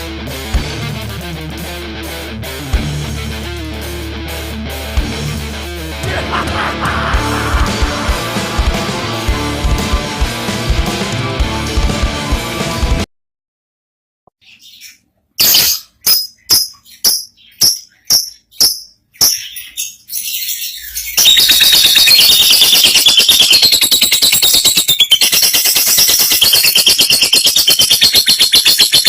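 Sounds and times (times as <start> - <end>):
lovebird chirps: 14.4 - 29.0
lovebird rapid rattling chatter: 21.0 - 29.0.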